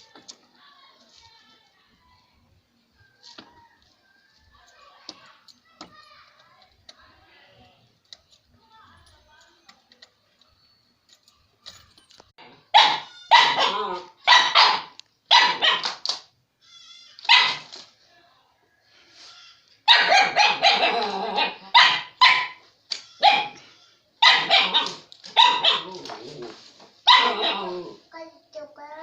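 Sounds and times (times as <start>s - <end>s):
dog barking: 12.4s - 16.0s, 17.3s - 17.7s, 19.9s - 22.6s, 23.2s - 23.6s, 24.2s - 26.2s, 27.0s - 28.0s.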